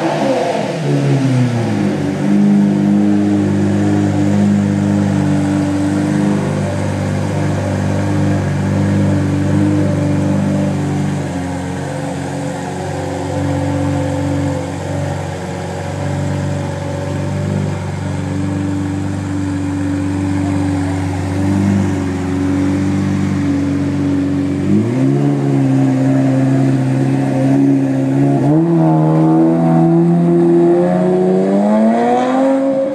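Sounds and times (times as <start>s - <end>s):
sports car engine revving: 0.0s - 32.9s.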